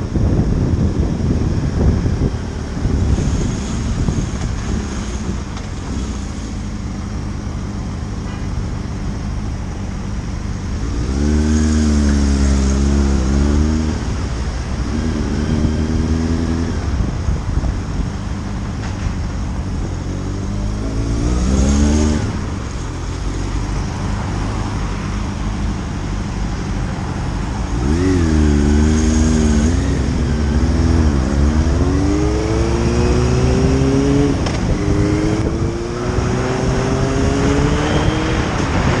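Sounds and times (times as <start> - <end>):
road noise rushing: 0.0 - 39.0
motorcycle engine accelerating: 10.6 - 17.2, 20.0 - 22.9, 27.6 - 39.0.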